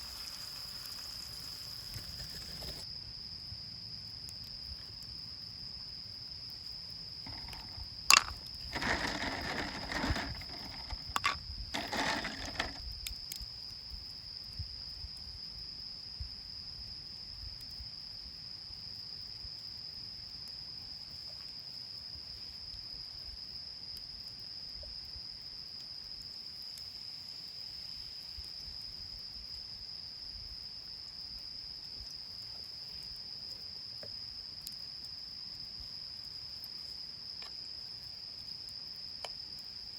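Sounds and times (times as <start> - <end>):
night insects trilling: 0.0 - 39.9
rustling handling noise: 7.3 - 12.8.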